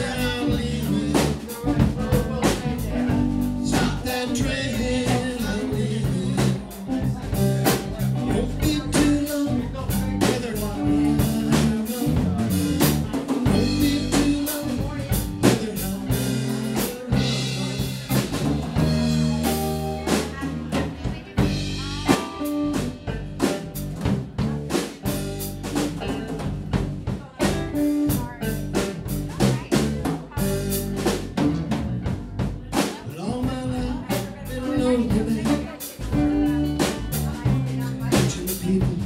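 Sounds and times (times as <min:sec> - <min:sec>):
bass line: 0:00.0 - 0:39.0
drum kit beat with rimshots: 0:00.0 - 0:39.0.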